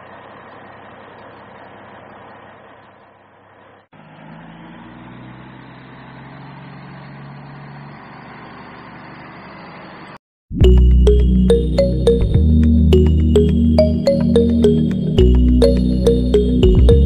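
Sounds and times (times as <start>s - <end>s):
truck engine droning: 3.9s - 17.0s.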